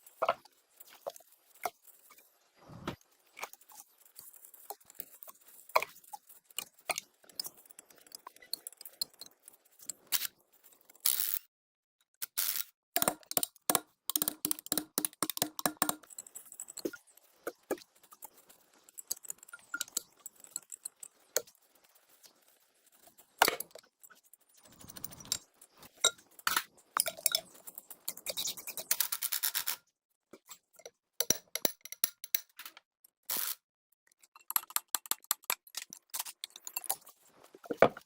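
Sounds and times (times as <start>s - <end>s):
metal parts and tools clinking: 24.6s - 29.8s.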